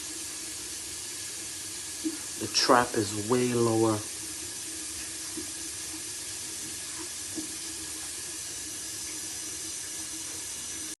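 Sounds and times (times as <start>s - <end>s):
faucet running into sink: 0.0s - 11.0s.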